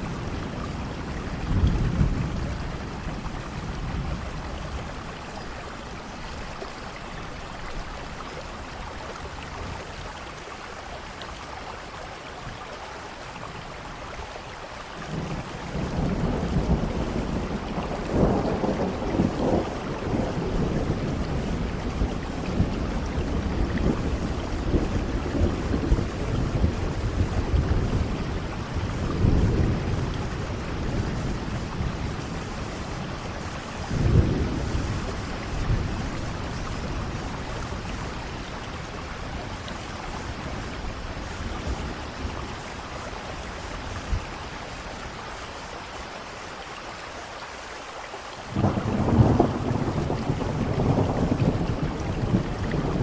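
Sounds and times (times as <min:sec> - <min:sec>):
thunder rumbling: 0:00.0 - 0:06.6, 0:15.1 - 0:44.4, 0:48.4 - 0:53.0
steady rain: 0:00.0 - 0:53.0.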